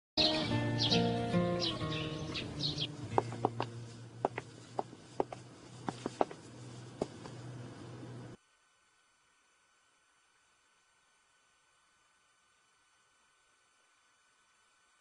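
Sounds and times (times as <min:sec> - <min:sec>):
background music: 0:00.2 - 0:04.2
birds chirping: 0:00.2 - 0:06.1
steady low hum: 0:00.5 - 0:15.0.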